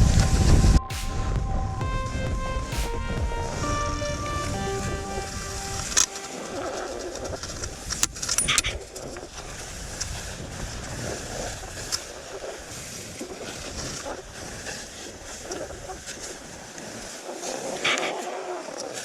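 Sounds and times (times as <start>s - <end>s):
skis scraping over snow: 9.5s - 19.0s.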